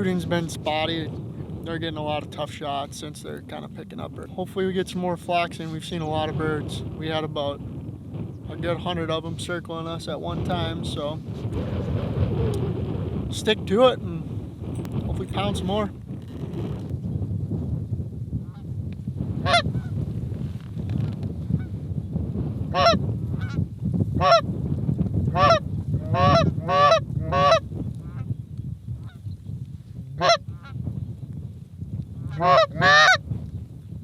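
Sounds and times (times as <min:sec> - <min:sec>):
wind rumble on microphone: 0:00.0 - 0:34.0
geese honking: 0:22.7 - 0:23.6, 0:25.4 - 0:28.2, 0:30.2 - 0:30.7, 0:32.3 - 0:33.2.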